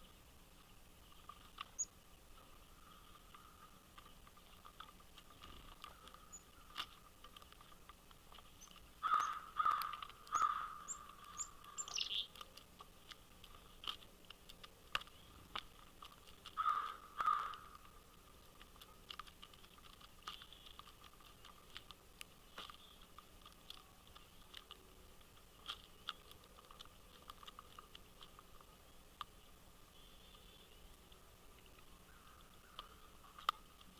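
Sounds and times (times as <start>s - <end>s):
wild birds calling: 0.0s - 13.8s, 15.0s - 21.8s, 31.8s - 33.7s
faint clicks: 2.8s - 29.4s, 30.3s - 33.9s.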